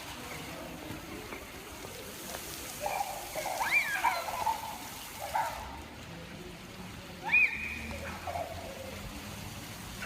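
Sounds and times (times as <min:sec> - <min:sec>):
fountain water splashing: 0:00.0 - 0:10.0
child squealing: 0:03.4 - 0:04.8.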